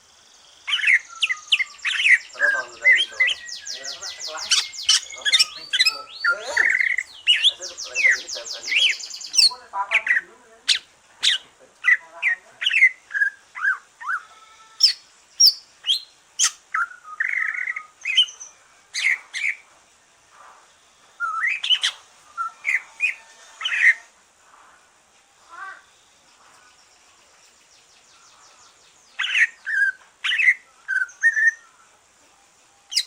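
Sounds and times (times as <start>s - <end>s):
songbird whistling and chirping: 0.6s - 9.5s, 14.8s - 19.6s, 21.0s - 24.1s, 27.4s - 33.0s.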